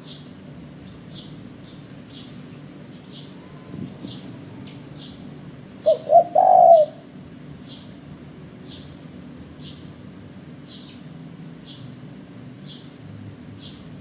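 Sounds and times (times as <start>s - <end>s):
dove cooing: 5.8s - 7.0s.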